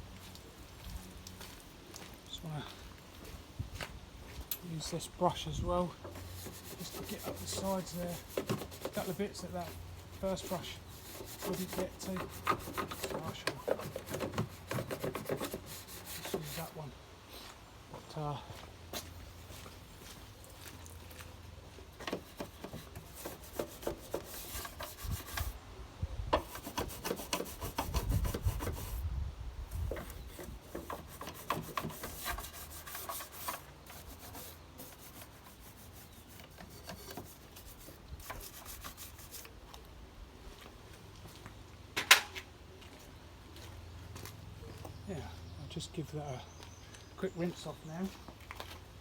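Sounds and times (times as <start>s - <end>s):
brush bristles scrubbing: 6.2s - 16.9s, 22.1s - 25.6s, 26.4s - 29.0s, 30.0s - 39.5s.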